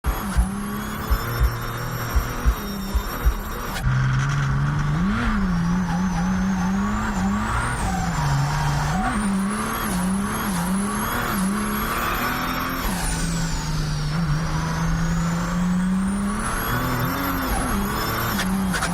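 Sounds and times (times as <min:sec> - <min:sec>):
diesel engine revving: 0:00.0 - 0:18.9
turbo whistle: 0:00.1 - 0:03.9.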